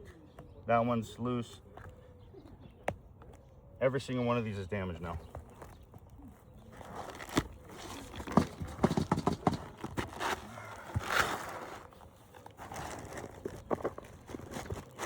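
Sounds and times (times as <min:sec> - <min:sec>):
shingles knocking and cracking: 0:06.8 - 0:11.8.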